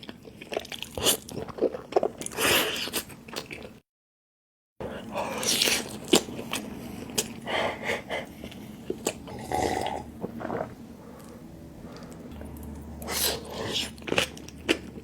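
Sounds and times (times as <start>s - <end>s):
crunchy chewing: 8.4s - 15.0s.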